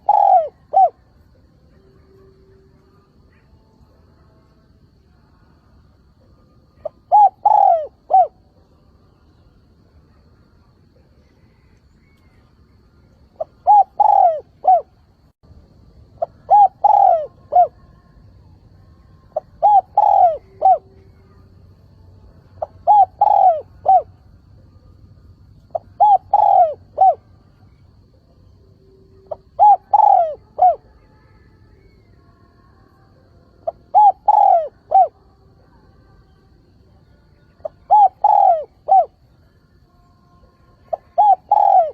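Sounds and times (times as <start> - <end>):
dove cooing: 0.0 - 1.1, 6.8 - 8.5, 13.4 - 15.0, 16.1 - 17.9, 19.3 - 21.5, 22.6 - 24.2, 25.7 - 27.8, 29.2 - 31.0, 33.6 - 35.2, 37.6 - 39.2, 40.8 - 41.9.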